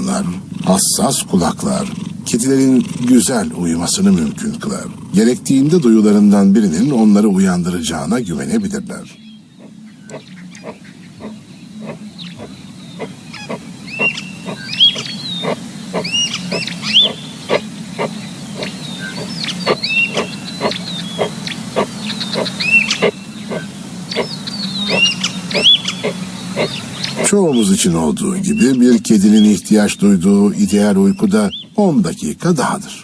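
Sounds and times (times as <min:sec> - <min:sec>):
steady low rumble: 0:00.0 - 0:30.7
animal high chirps: 0:09.6 - 0:27.3
regular ticking: 0:10.1 - 0:27.8.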